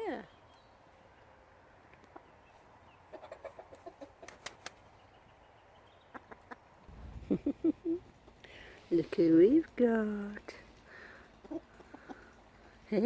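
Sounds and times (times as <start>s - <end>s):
roosters clucking softly: 1.9s - 4.9s, 10.6s - 13.0s.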